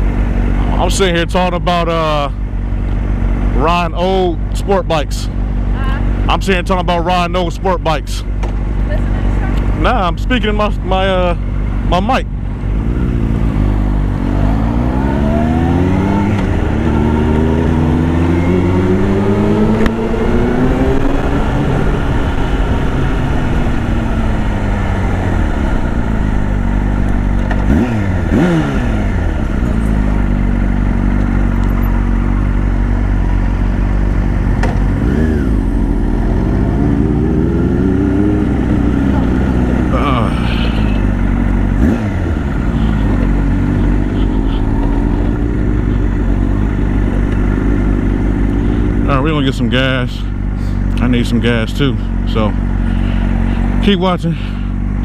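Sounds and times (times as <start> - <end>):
motorcycle engine revving: 0.0 - 55.0
wind and road rumble: 0.0 - 55.0.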